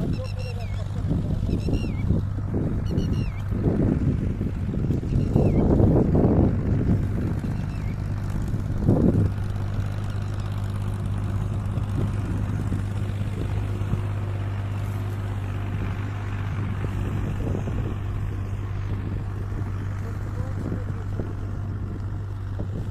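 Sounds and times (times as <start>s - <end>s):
boat engine humming: 0.0s - 22.9s.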